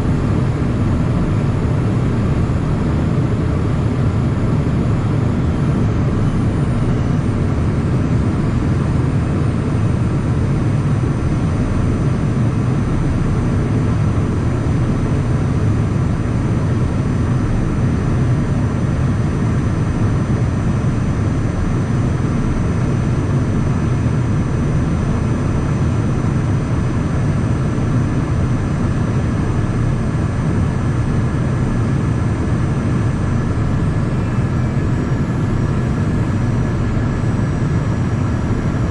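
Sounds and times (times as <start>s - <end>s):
faint high whine: 0.0s - 18.4s, 19.1s - 38.9s
jet cabin airflow and engine drone: 0.0s - 38.9s.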